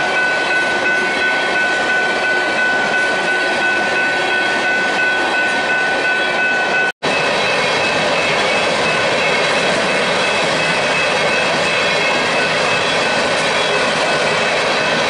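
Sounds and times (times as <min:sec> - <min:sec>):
freight train rolling by: 0:00.0 - 0:15.0.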